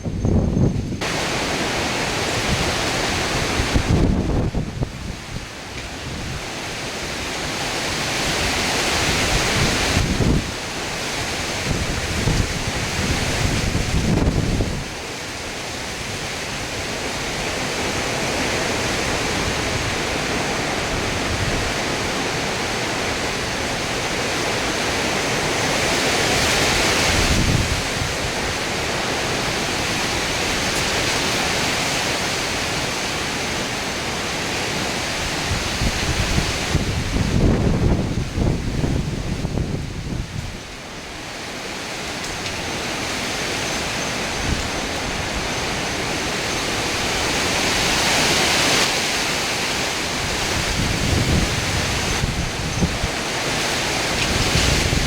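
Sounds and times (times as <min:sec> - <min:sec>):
wind buffeting microphone: 0:00.0 - 0:15.1, 0:15.9 - 0:55.0
heavy rain: 0:00.0 - 0:55.0
hurricane wind: 0:00.0 - 0:55.0.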